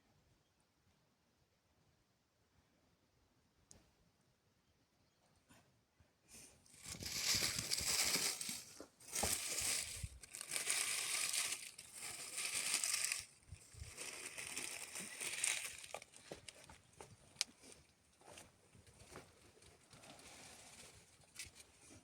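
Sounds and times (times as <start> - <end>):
crinkling and crumpling: 6.7 - 22.0.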